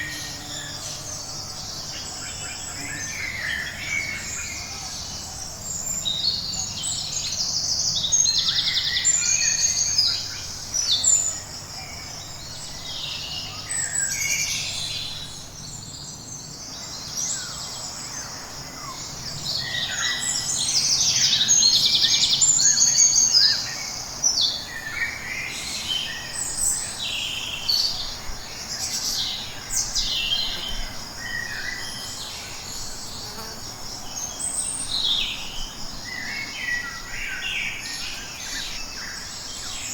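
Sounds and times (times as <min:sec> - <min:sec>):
birds chirping and trilling: 0:00.0 - 0:39.9
high insect drone: 0:00.0 - 0:39.9.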